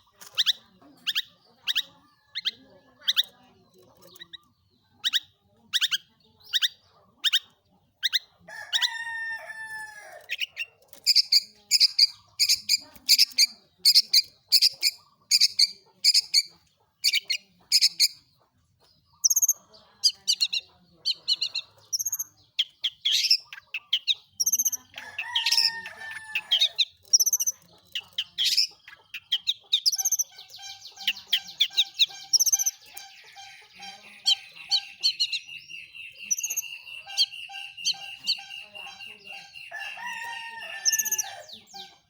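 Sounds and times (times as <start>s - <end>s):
shrike singing: 19.3s - 42.0s.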